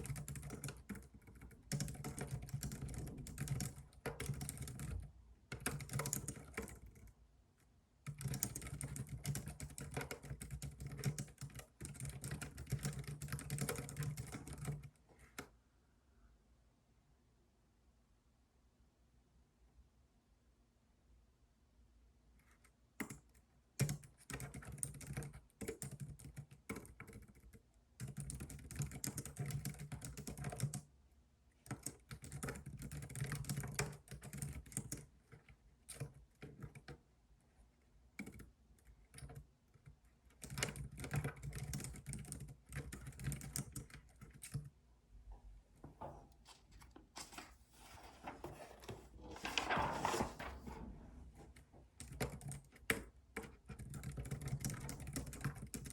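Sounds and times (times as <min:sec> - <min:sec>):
keyboard typing: 0:00.0 - 0:07.1, 0:08.0 - 0:15.5, 0:23.0 - 0:30.8, 0:31.7 - 0:37.0, 0:38.2 - 0:44.8, 0:46.9 - 0:55.9.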